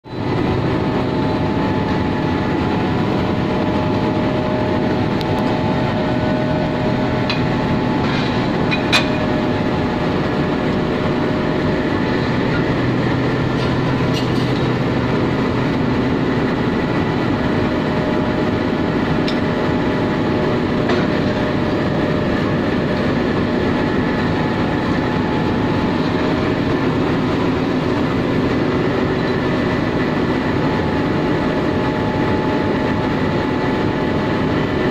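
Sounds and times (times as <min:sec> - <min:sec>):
diesel locomotive engine running: 0:00.0 - 0:34.9.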